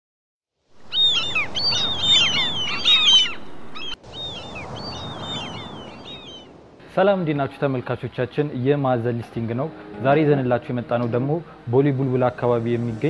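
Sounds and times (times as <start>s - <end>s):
background hiss: 0.8s - 13.0s
many birds chirping and whistling: 0.9s - 6.5s.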